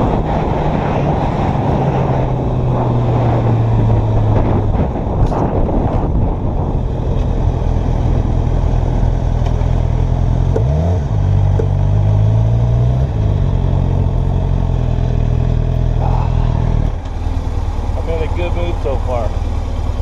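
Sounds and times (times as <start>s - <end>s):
motorcycle engine idling: 15.6s - 20.0s.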